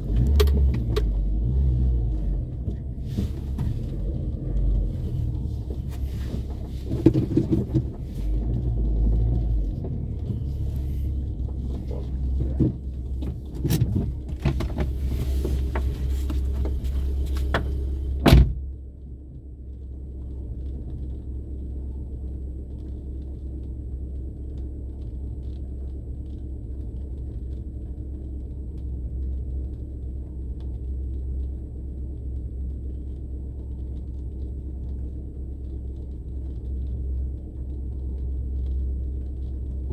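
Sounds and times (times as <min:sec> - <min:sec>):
bumps and rattles: 0:00.0 - 0:18.7
car engine and road rumble: 0:00.0 - 0:39.9.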